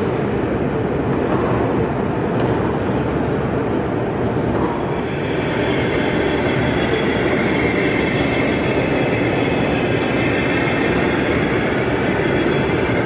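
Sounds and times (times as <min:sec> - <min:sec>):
model train rolling on track: 0:04.8 - 0:13.0.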